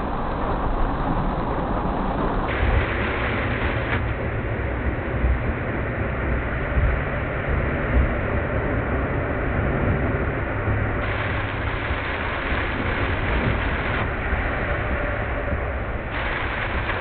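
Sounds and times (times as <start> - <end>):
heavy rain on a car: 0.3 - 4.3, 11.0 - 17.0
tyres hissing on wet road: 2.5 - 4.3, 11.0 - 17.0.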